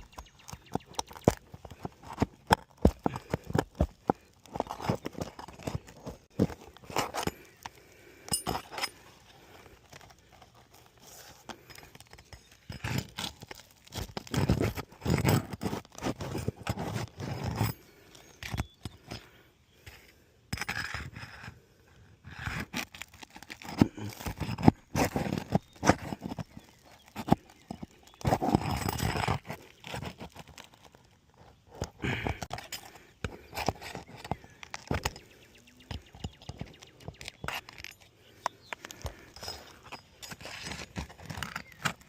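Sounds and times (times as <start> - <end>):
roof shingles scraping and tearing: 9.4 - 18.6, 22.4 - 35.4, 39.8 - 42.0.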